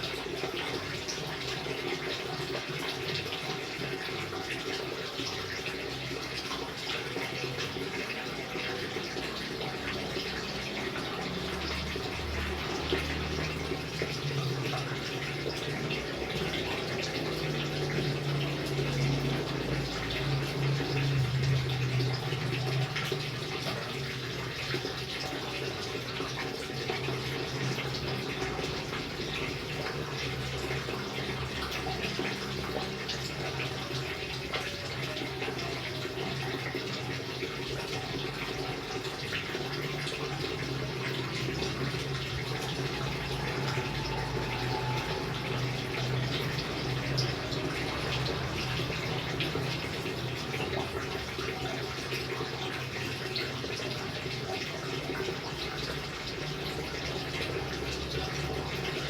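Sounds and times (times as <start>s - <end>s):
rain falling: 5.1s - 25.6s, 26.3s - 59.0s.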